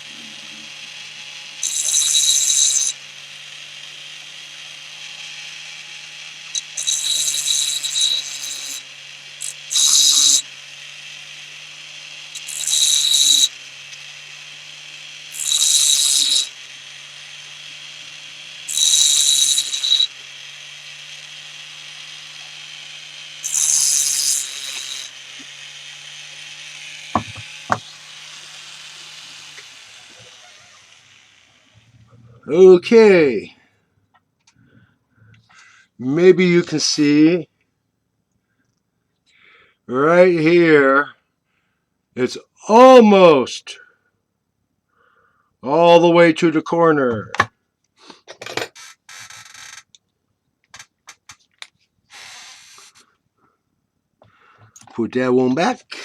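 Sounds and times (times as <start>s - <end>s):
harsh hissing metal cutting: 0.0s - 3.6s, 6.0s - 17.2s, 18.0s - 21.1s, 22.4s - 25.6s, 26.8s - 31.8s, 52.1s - 53.0s.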